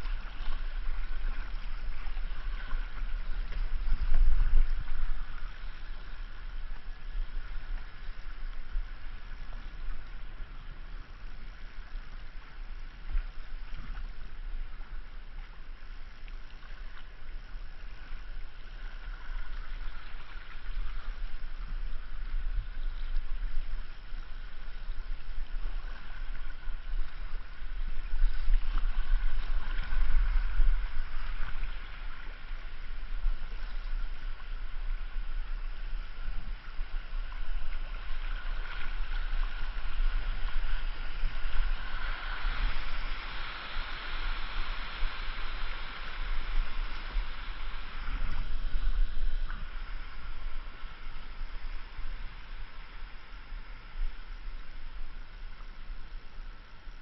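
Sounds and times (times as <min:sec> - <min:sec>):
river water rushing and gurgling: 0:00.0 - 0:57.0
steady low rumble: 0:00.0 - 0:57.0.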